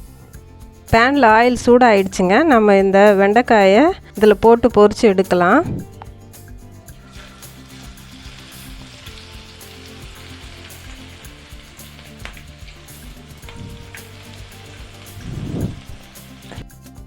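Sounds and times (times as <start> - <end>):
okra deep-frying in oil: 6.9 - 16.7.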